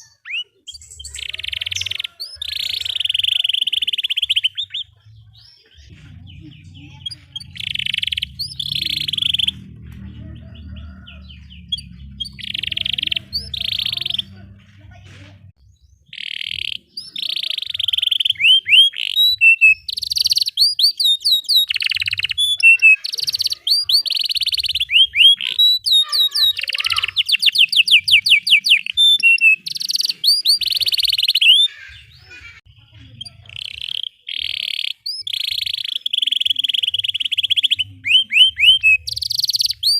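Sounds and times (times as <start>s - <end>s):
canary singing trills: 0.0s - 14.6s, 15.5s - 39.9s
low hum: 5.9s - 15.6s.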